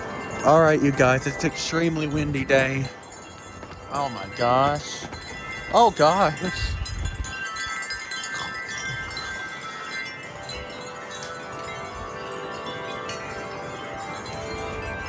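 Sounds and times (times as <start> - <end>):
gusty wind: 0.0 - 15.0
wind chimes ringing: 0.0 - 15.0.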